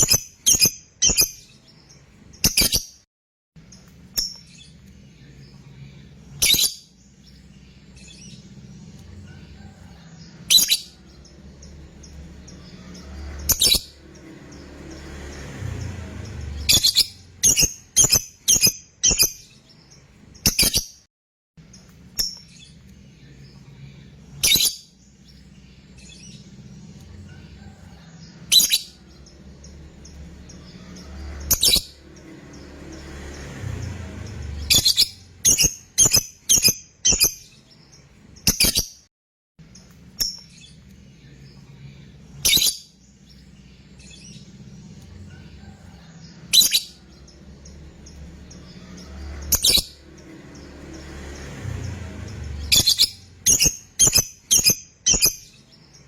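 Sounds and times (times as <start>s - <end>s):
lovebird shrill calls: 52.6s - 55.6s.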